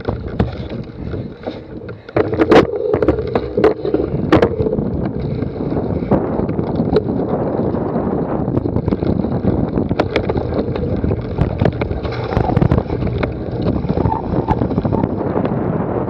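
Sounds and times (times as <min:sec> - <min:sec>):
bike knocks and rattles: 0:00.0 - 0:07.8, 0:08.6 - 0:15.6
wind buffeting microphone: 0:00.0 - 0:16.0.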